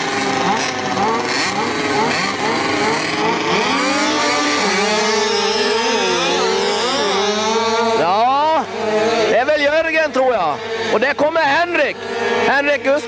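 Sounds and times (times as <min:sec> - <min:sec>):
motorcycles revving: 0:00.0 - 0:13.0.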